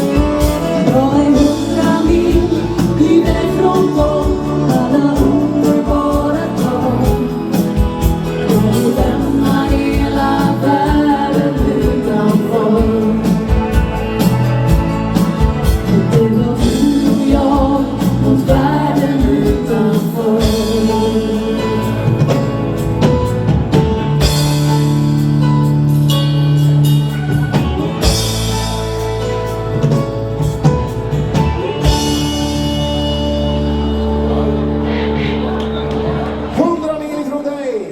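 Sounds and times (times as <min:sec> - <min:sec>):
person singing: 0:00.0 - 0:22.7, 0:31.3 - 0:36.5
steady drum beat: 0:00.0 - 0:33.1
live dance band: 0:00.0 - 0:37.9.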